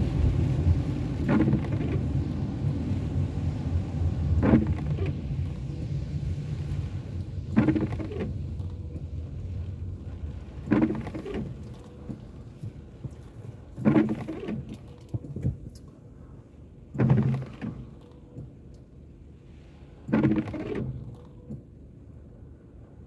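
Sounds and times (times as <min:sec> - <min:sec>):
car rumbling on road: 0:00.0 - 0:16.2
windscreen wipers sweeping: 0:00.0 - 0:22.0.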